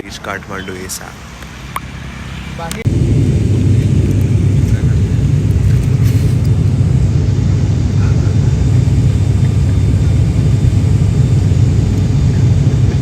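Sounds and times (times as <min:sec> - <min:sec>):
aircraft cabin engine drone: 0:00.0 - 0:13.0.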